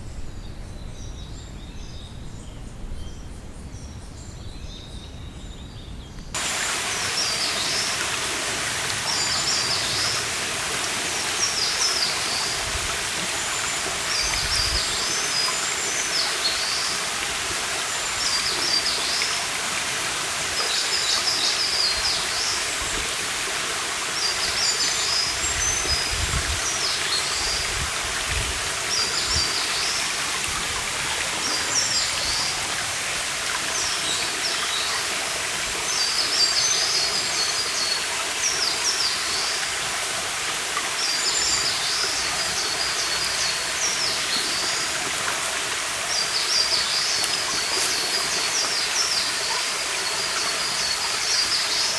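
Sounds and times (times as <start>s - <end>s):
forest stream rushing: 6.4s - 51.9s
songbird chirping: 46.2s - 50.9s.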